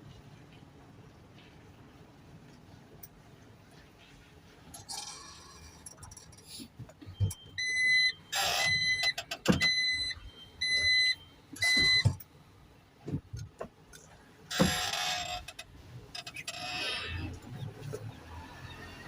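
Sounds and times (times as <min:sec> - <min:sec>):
truck reversing beeper: 0:07.0 - 0:12.2.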